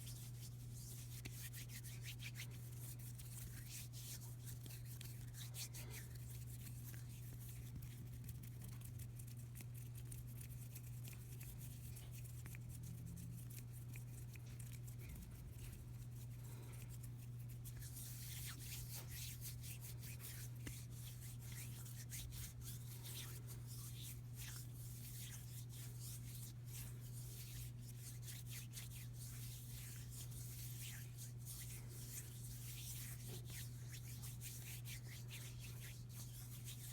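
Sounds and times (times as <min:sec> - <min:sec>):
hands rubbing together: 0:00.0 - 0:08.6, 0:09.3 - 0:36.9
steady low hum: 0:10.7 - 0:36.9.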